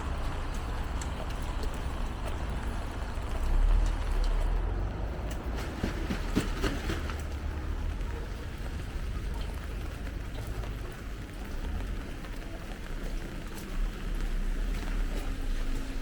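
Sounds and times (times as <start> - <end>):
low vehicle rumble: 0.0 - 16.0
rain: 0.0 - 16.0
traffic noise: 0.0 - 16.0
light ticks: 0.1 - 5.5.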